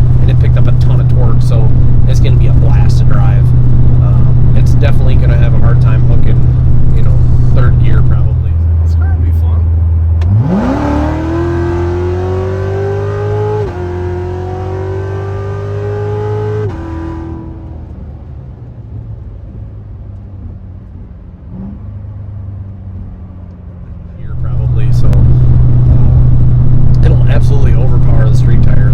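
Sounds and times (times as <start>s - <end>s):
engine accelerating hard: 0.0s - 17.8s, 24.2s - 28.9s.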